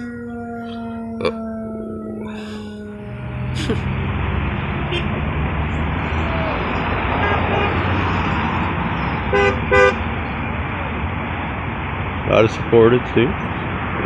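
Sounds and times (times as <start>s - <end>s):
road traffic passing: 0.0s - 14.0s
car horn toots: 4.8s - 5.2s, 7.1s - 7.9s, 9.3s - 10.0s.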